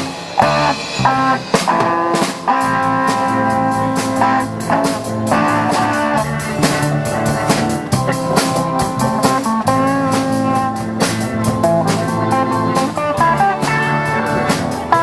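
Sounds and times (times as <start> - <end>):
drum kit beat: 0.0 - 15.0
guitar melody: 0.0 - 15.0.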